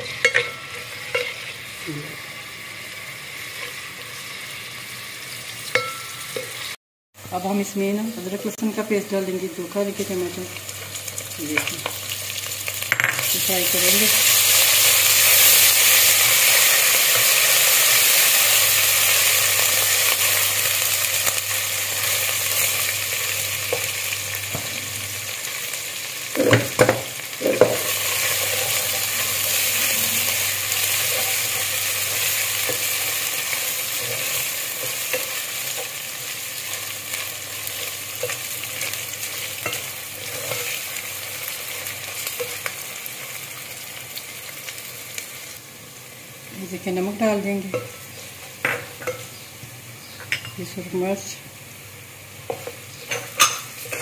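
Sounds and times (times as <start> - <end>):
onions sizzling in hot fat: 0.0 - 54.0.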